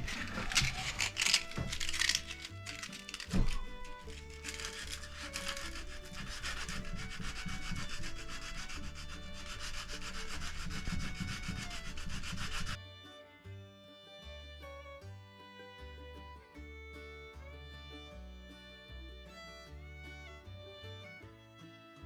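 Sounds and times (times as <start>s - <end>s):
hand sanding wood: 0.0s - 12.8s.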